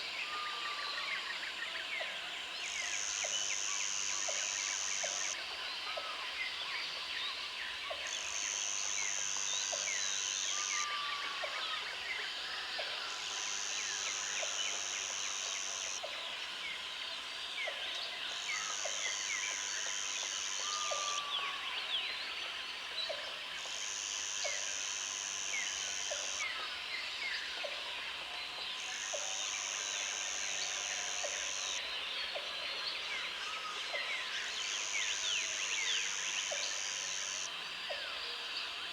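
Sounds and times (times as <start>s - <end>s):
high steady insect buzz: 2.6s - 5.4s, 8.1s - 12.2s, 13.0s - 16.1s, 18.2s - 21.6s, 23.6s - 27.0s, 28.8s - 31.9s, 34.3s - 37.7s.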